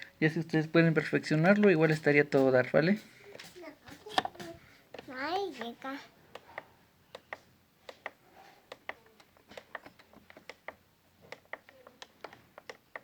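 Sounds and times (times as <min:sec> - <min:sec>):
plastic buttons clicking: 0:06.4 - 0:13.0.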